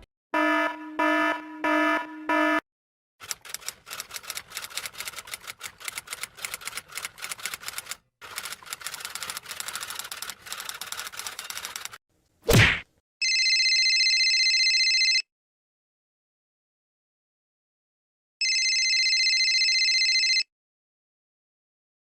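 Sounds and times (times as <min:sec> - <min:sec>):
rapid typing key clicks: 0:03.2 - 0:12.0.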